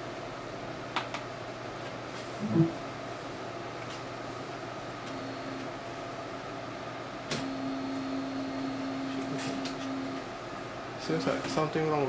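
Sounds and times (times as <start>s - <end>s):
printer motor humming: 5.0s - 12.0s.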